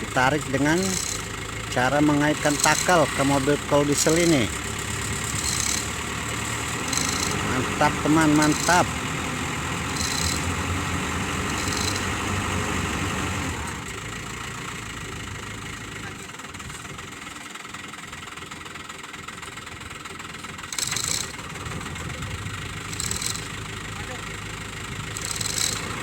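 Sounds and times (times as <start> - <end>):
diesel truck engine idling: 0.0 - 26.0
short high-pitched rattles: 0.6 - 1.6, 2.3 - 8.9, 9.8 - 10.7, 11.4 - 12.2, 20.7 - 21.5, 22.8 - 23.7, 25.1 - 26.0.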